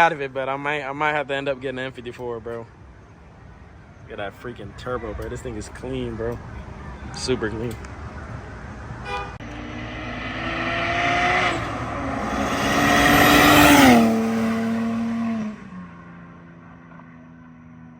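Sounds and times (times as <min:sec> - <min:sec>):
car engine revving: 0:05.3 - 0:17.0.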